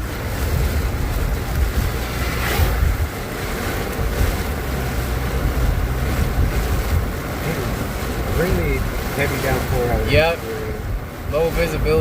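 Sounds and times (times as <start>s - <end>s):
car driving rumble: 0.0s - 12.0s
heavy rain on a car: 0.0s - 12.0s
strong wind on a car: 0.0s - 12.0s.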